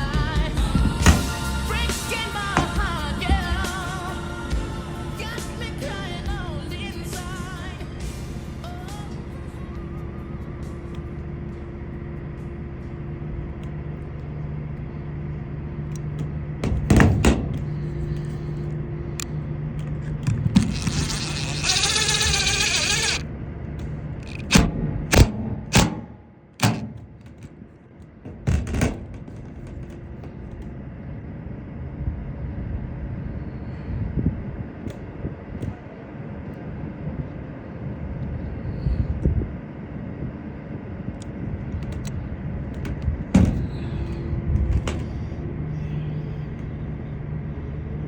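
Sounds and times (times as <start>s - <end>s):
steady low hum: 0.0s - 48.0s
loud knocks on metal roof: 16.6s - 17.6s, 28.2s - 29.8s, 43.4s - 43.7s
power drill whirring: 20.4s - 23.3s.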